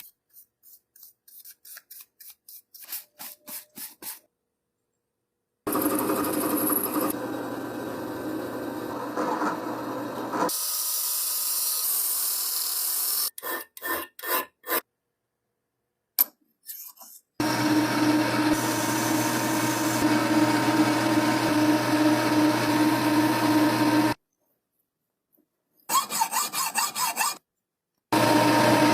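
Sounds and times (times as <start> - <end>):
electric tool grinding: 5.7 - 10.3, 17.4 - 24.2, 28.1 - 28.9.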